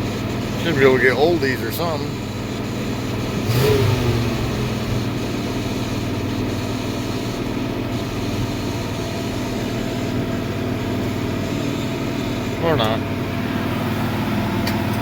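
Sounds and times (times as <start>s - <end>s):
pickup engine idling: 0.0s - 15.0s.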